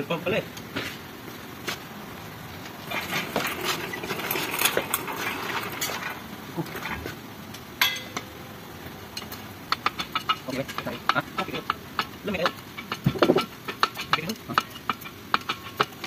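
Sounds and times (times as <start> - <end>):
sharp metal clank: 7.8 - 8.3.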